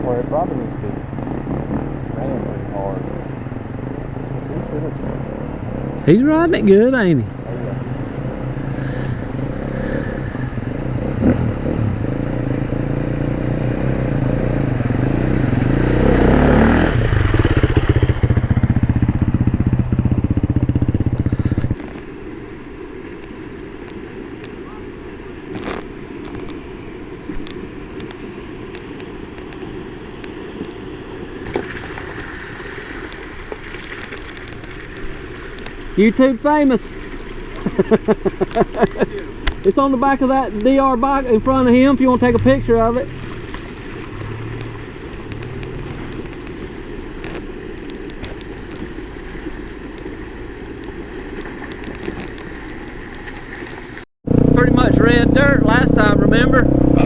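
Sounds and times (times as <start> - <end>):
dirt bike engine running: 0.0 - 22.0, 33.2 - 53.1, 54.2 - 57.0
wind noise on microphone: 7.2 - 36.0
light ticks: 38.0 - 39.7, 44.2 - 46.6
sharp ticks: 40.4 - 48.9.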